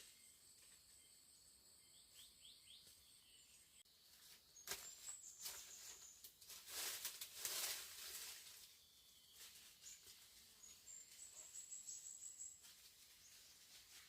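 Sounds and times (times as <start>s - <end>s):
faint rustling and crackling: 4.1s - 11.8s, 12.4s - 14.0s.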